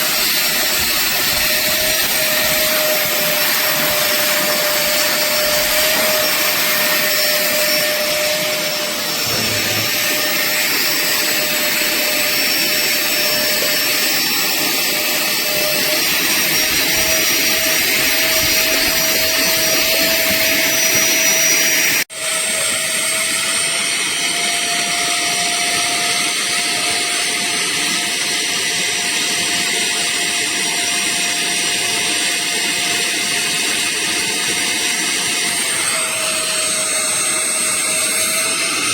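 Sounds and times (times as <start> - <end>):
wet vacuum motor whining: 0.0 - 38.9.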